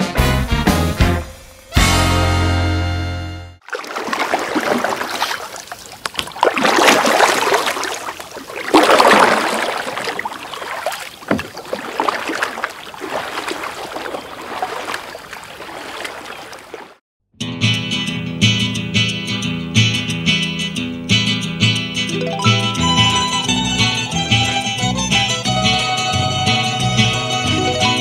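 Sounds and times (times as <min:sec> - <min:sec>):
sea water rushing and splashing: 0:03.6 - 0:17.0.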